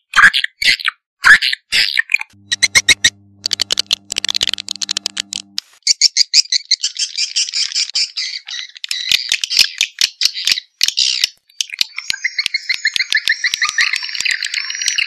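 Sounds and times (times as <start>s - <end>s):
bird chirps and clicks: 7.6s - 15.0s.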